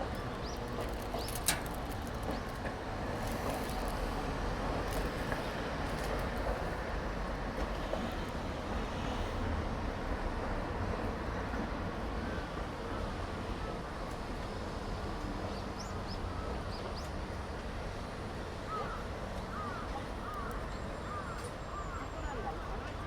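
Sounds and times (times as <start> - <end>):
street noise rumble: 0.0 - 15.5.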